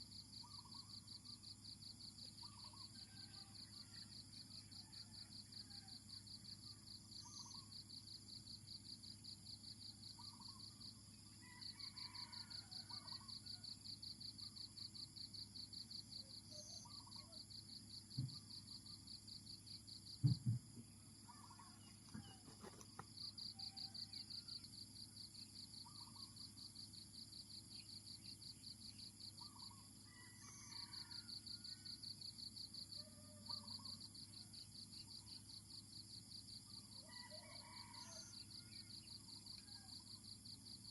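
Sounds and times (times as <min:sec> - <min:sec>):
insects trilling: 0:00.0 - 0:40.9
dull knocks: 0:20.2 - 0:20.6.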